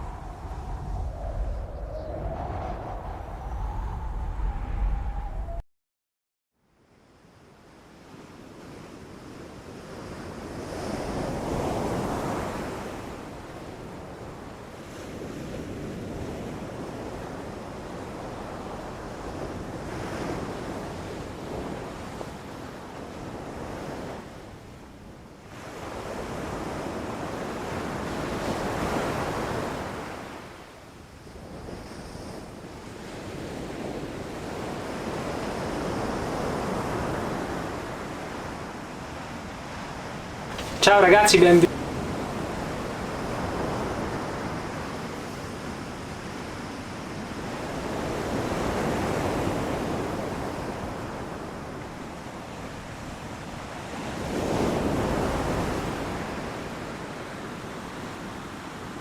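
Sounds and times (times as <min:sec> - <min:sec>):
wind gusts: 0:00.0 - 0:05.6.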